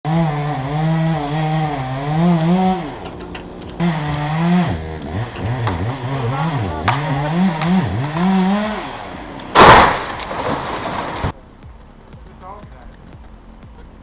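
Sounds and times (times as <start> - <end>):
chainsaw engine revving: 0.0 - 11.4.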